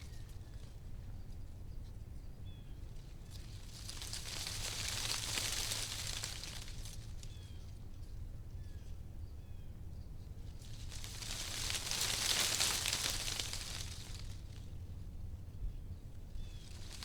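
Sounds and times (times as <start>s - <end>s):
wind rustling tree leaves: 3.0s - 7.9s, 10.4s - 15.2s, 16.2s - 17.0s.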